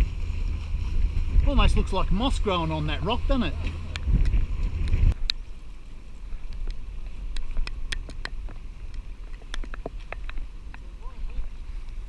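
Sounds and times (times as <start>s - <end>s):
wind buffeting microphone: 0.0s - 5.5s
boat engine humming: 0.0s - 12.0s.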